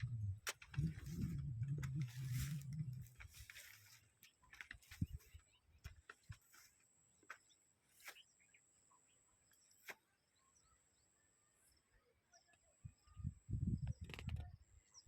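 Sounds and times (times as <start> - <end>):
faint chirps: 0.0 - 6.8.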